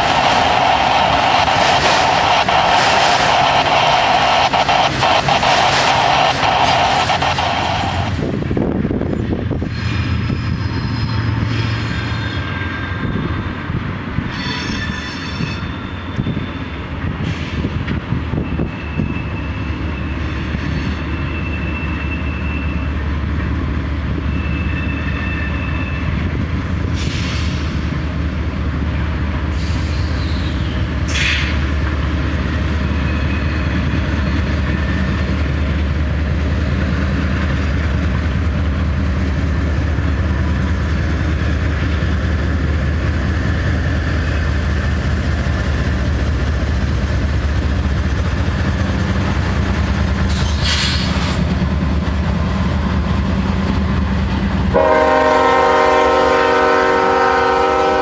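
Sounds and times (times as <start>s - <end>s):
freight train rumbling: 0.0s - 58.0s
locomotive air horn: 54.7s - 58.0s.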